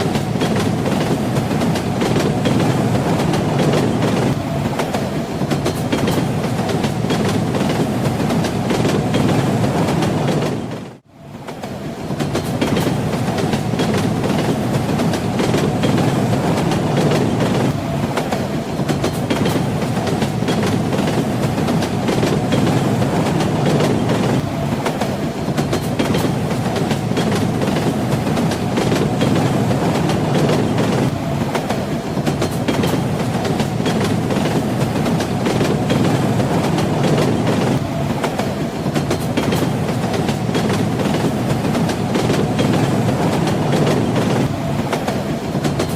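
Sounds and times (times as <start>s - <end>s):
train rumble: 0.0s - 45.9s
wheels clacking over rail joints: 0.0s - 45.9s.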